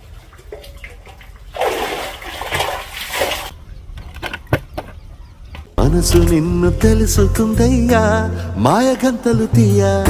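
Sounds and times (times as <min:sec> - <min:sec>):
water rushing and splashing: 0:00.0 - 0:03.6.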